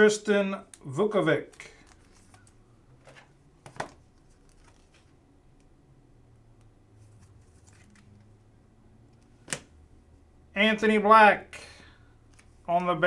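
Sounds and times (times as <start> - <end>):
trading cards rustling: 0.7 - 5.2, 7.0 - 8.4.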